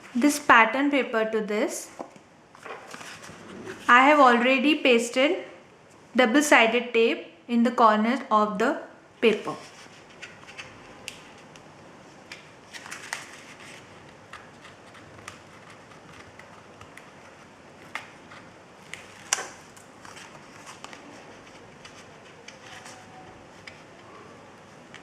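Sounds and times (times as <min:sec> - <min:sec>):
paper rustling and tapping: 0:09.3 - 0:24.0.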